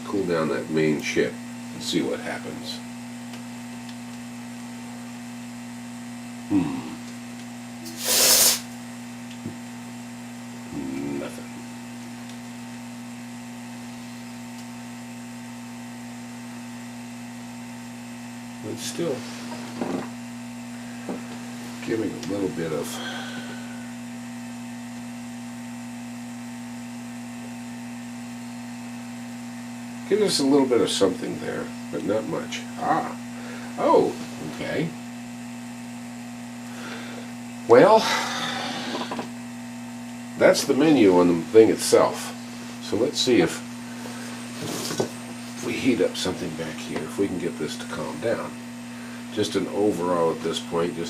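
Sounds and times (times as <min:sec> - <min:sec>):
mains hum: 0:00.0 - 0:51.0
aerosol spray hissing: 0:07.8 - 0:08.7.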